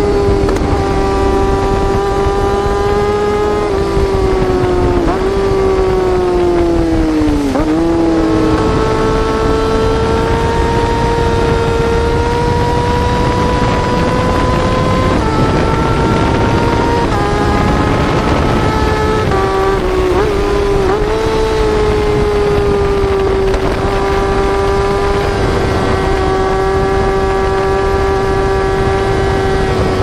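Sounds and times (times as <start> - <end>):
motorcycle engine at high revs: 0.0 - 30.0.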